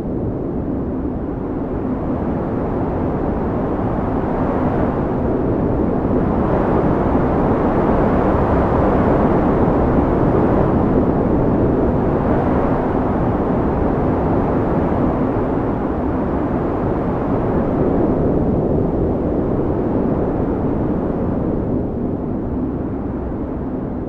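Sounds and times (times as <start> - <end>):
strong wind blowing: 0.0 - 24.0.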